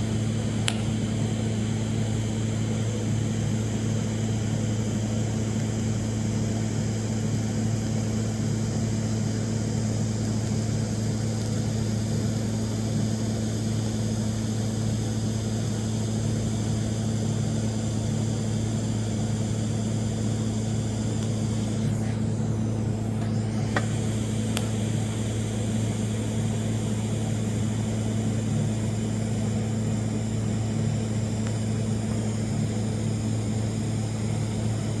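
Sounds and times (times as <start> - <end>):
welding arc buzzing: 0.0 - 13.0, 19.4 - 35.0
sharp clicks: 0.6 - 1.0.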